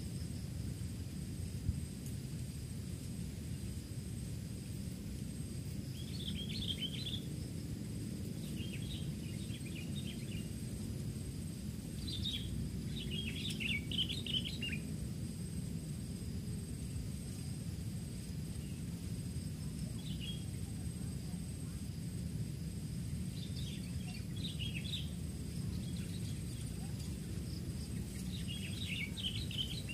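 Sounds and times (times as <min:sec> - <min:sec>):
faint high whine: 0:00.0 - 0:29.9
low outdoor rumble: 0:00.0 - 0:29.9
songbird chattering: 0:28.0 - 0:29.9.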